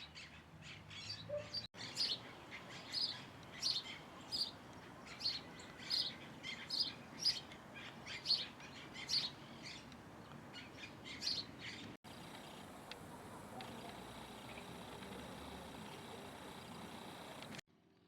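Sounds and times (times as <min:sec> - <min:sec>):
bird chirping: 0:00.0 - 0:17.6
faint ticks: 0:12.2 - 0:17.6.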